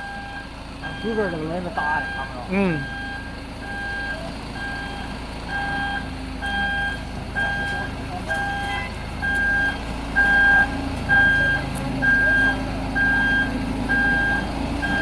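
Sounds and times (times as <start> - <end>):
engine running: 0.0 - 15.0
two-tone reversing alarm beeping: 0.0 - 15.0.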